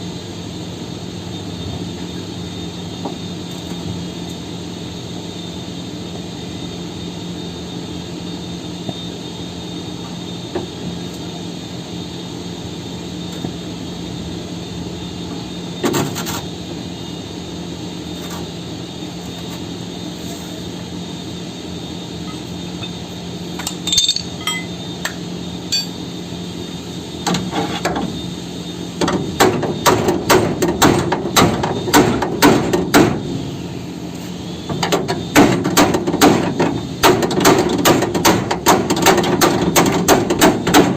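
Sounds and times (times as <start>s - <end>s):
steady machine hum: 16.6s - 27.2s
scattered knocks and clinks: 23.6s - 24.8s, 25.7s - 26.0s.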